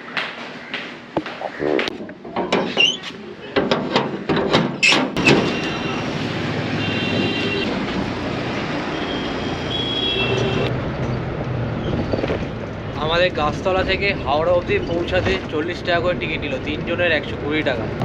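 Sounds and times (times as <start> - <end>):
vehicle running noise: 5.2 - 18.0.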